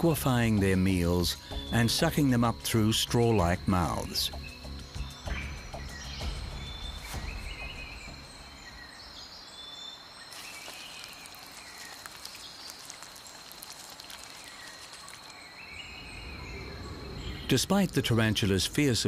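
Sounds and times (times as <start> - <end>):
bird chirping: 0.0 - 19.0
insect drone: 0.0 - 19.0
crackle of ticks: 10.4 - 15.5.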